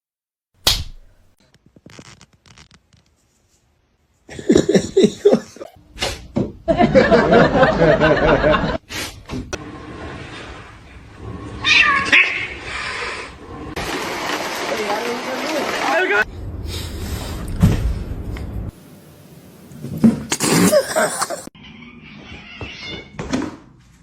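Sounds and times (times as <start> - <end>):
cat meowing: 11.6 - 12.6, 21.7 - 23.2.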